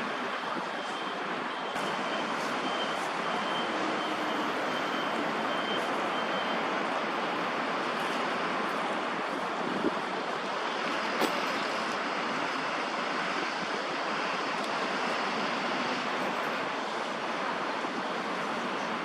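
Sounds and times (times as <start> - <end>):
distant city traffic: 0.0 - 19.0.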